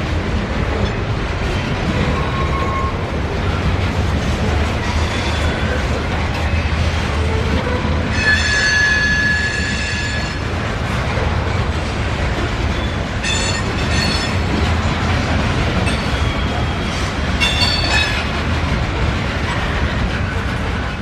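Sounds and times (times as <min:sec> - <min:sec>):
train rumbling by: 0:00.0 - 0:21.0
high-pitched wheel squeals: 0:02.0 - 0:03.0, 0:08.1 - 0:10.4.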